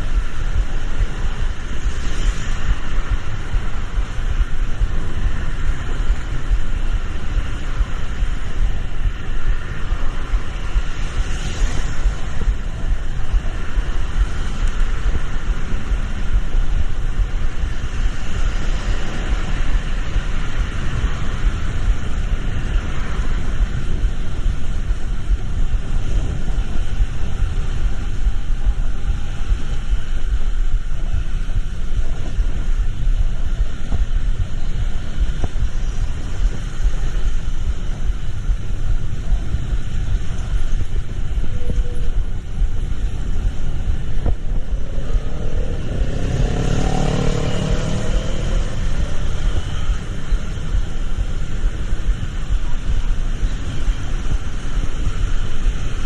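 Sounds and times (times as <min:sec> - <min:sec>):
low vehicle rumble: 0:00.0 - 0:56.0
rain hiss: 0:00.0 - 0:56.0.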